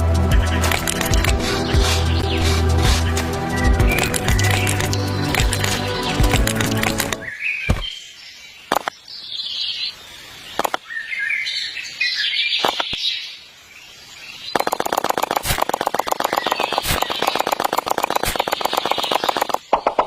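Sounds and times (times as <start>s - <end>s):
birds chirping: 0.0s - 20.0s
fast even ticking: 0.3s - 7.2s, 14.6s - 20.0s.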